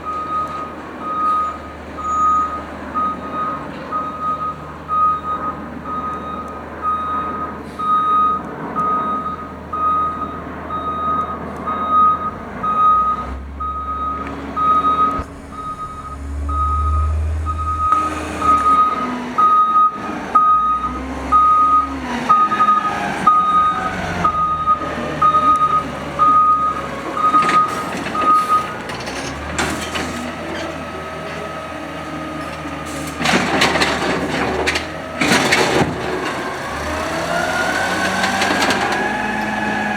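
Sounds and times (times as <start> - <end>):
reversing alarm beeping: 0.0 - 28.8
truck engine revving: 8.6 - 39.9
loud crunching clatter: 15.0 - 19.2, 32.5 - 39.9.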